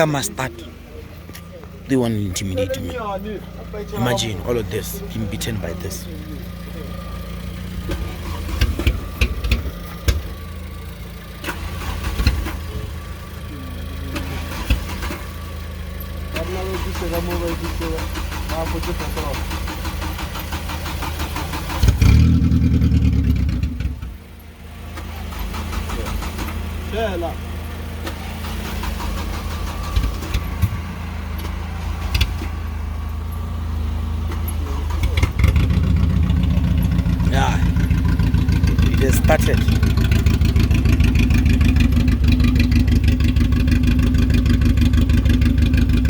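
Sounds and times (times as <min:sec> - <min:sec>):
car engine idling unevenly: 0:00.0 - 0:46.0
engine knocks and pops: 0:07.4 - 0:13.0, 0:14.1 - 0:24.3, 0:24.9 - 0:26.8, 0:27.9 - 0:32.7, 0:34.2 - 0:46.0.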